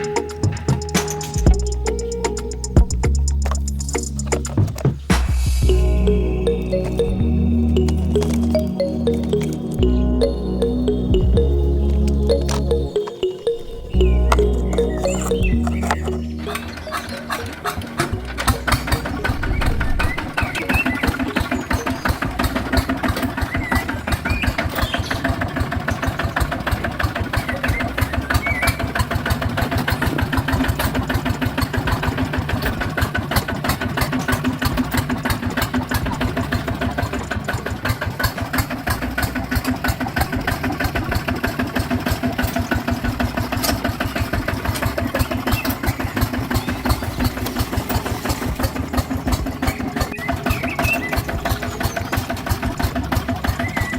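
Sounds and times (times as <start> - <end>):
small tractor engine chugging: 14.0 - 53.9.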